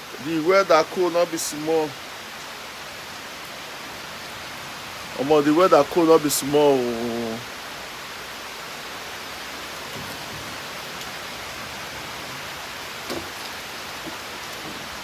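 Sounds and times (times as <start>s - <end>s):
steady rainfall: 0.0s - 15.0s
faint drips and ticks: 8.4s - 15.0s.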